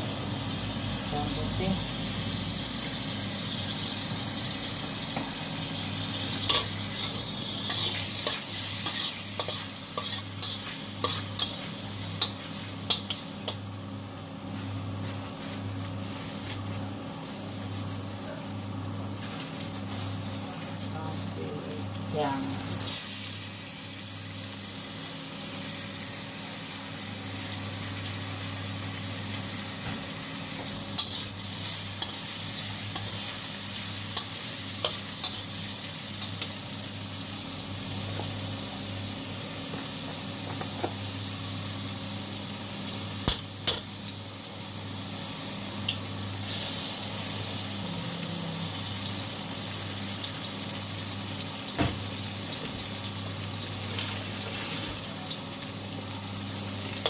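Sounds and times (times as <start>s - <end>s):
food sizzling in hot oil: 0.0s - 57.0s
metal spatula scraping a wok: 6.4s - 13.2s.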